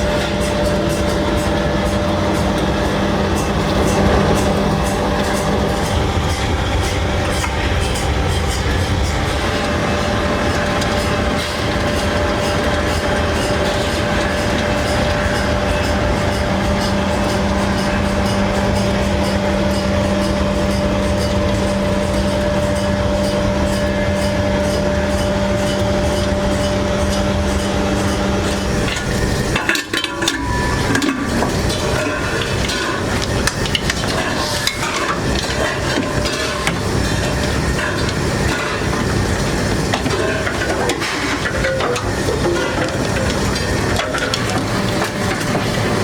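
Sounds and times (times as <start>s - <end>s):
machine humming: 0.0s - 46.0s.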